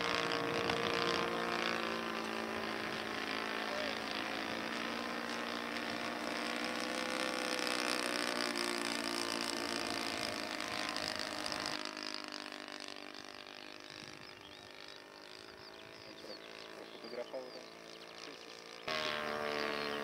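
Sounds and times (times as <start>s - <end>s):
model airplane engine buzzing: 0.0s - 20.0s.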